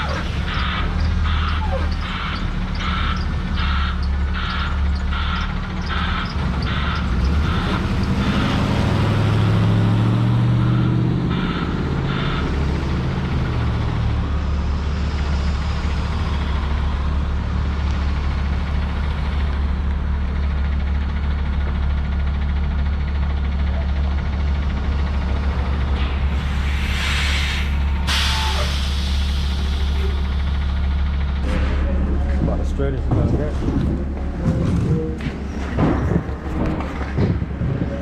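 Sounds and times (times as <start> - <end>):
reversing alarm beeping: 0.0 - 8.5
truck diesel engine running: 0.0 - 38.0.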